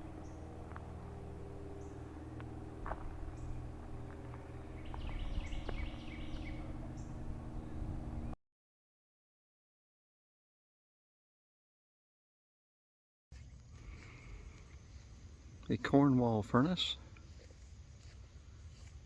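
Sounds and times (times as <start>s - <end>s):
car engine humming: 0.0s - 8.4s
high chirping: 0.0s - 8.4s.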